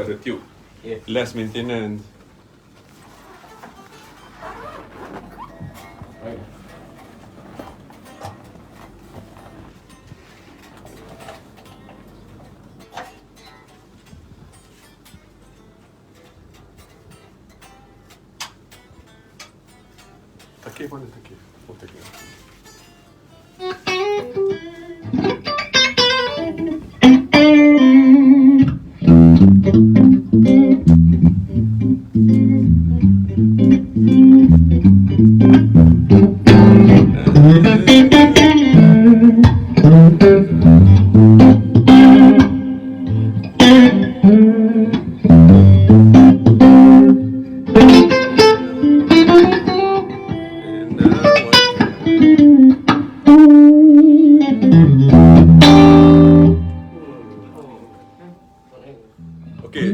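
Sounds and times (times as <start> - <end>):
electric guitar riffing: 22.1 - 58.6, 59.2 - 59.9.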